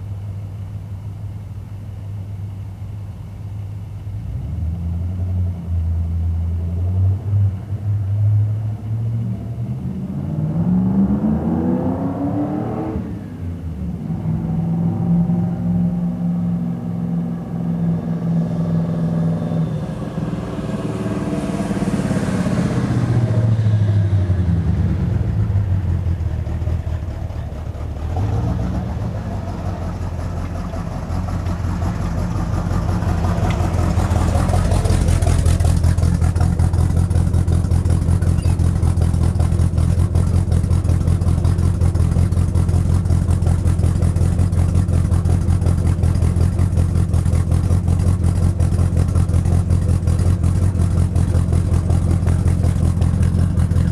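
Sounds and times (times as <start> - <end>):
vee eight engine revving: 9.6 - 40.7.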